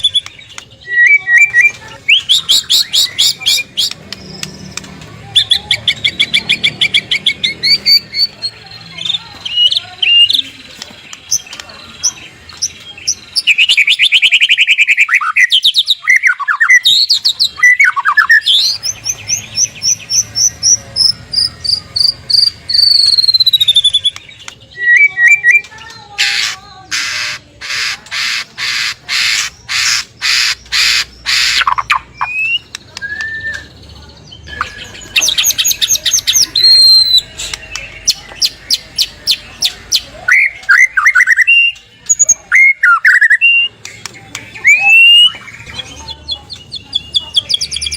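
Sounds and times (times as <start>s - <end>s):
songbird singing varied song: 0.0s - 26.0s, 27.9s - 47.9s.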